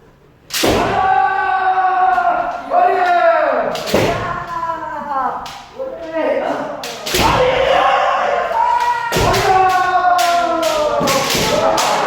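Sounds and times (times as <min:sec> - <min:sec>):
bamboo swords striking: 0:00.5 - 0:01.1, 0:06.8 - 0:07.7, 0:08.7 - 0:12.0
people shouting: 0:00.6 - 0:04.6, 0:07.0 - 0:12.0.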